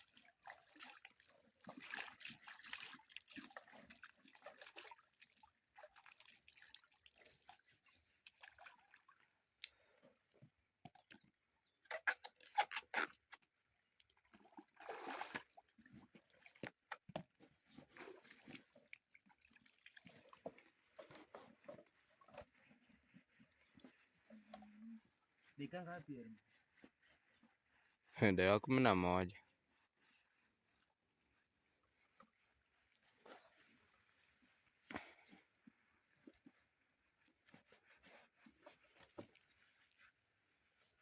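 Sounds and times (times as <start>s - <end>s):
water splashing and sloshing: 0.0s - 27.4s, 37.5s - 40.1s.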